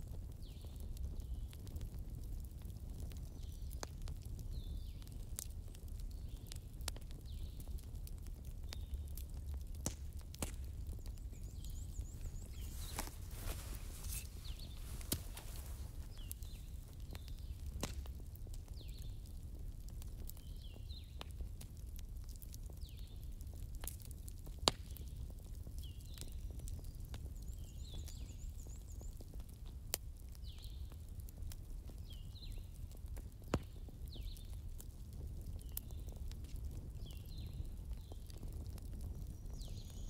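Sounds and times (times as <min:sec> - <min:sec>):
fireplace crackling and popping: 0:00.0 - 0:40.0
small bird chirping: 0:10.8 - 0:17.5.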